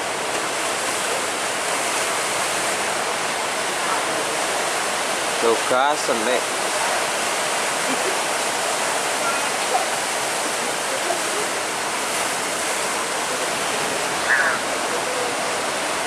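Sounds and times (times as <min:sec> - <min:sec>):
rough sea and breaking waves: 0:00.0 - 0:16.0.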